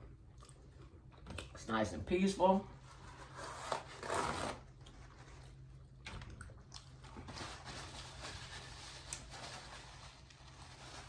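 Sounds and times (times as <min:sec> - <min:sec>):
chewing with mouth clicks: 0:00.0 - 0:01.6, 0:05.9 - 0:07.1.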